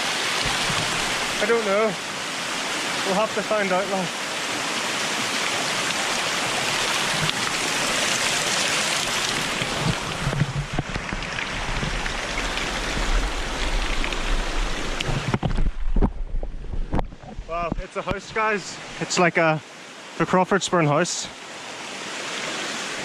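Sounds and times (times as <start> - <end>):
waterfall and stream rushing: 0.0 - 23.0
wind buffeting microphone: 9.4 - 17.9
low knocks: 14.9 - 17.9.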